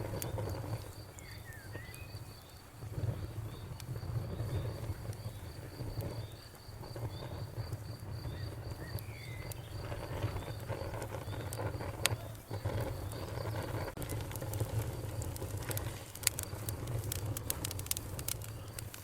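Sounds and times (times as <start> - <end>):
cricket chirping: 0.0 - 14.0
wood fire crackling: 0.0 - 19.0.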